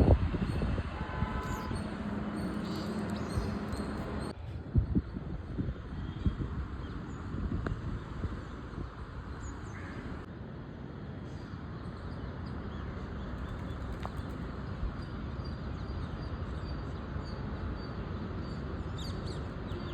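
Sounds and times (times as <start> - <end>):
low wind rumble: 0.0 - 19.9.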